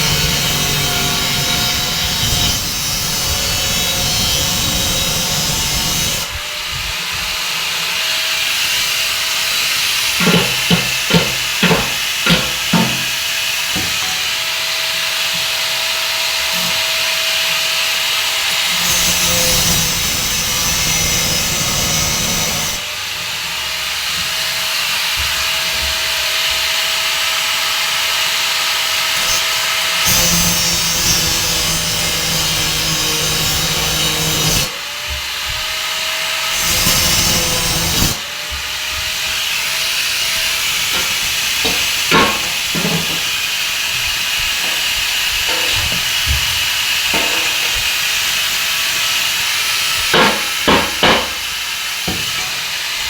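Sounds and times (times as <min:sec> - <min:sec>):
tool work noise: 0:00.0 - 0:53.0.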